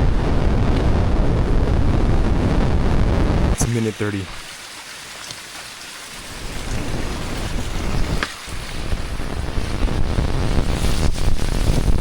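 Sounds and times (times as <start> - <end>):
low wind rumble on microphone: 0.0 - 3.7, 6.1 - 12.0
steady rain falling: 0.1 - 12.0.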